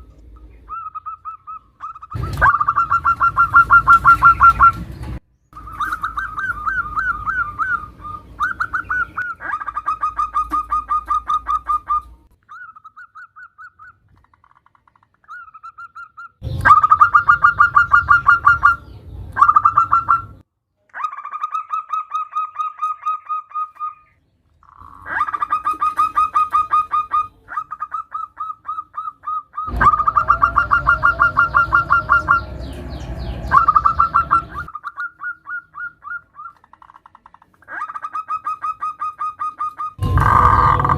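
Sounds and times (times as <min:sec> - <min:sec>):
dove cooing: 0:00.0 - 0:04.9, 0:05.6 - 0:12.8, 0:24.8 - 0:36.7, 0:37.7 - 0:40.9.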